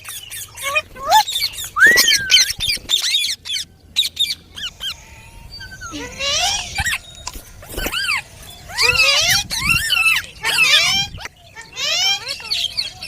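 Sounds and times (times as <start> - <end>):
parakeets squawking and chirping: 0.0 - 13.0
parakeet gliding call: 1.2 - 5.4.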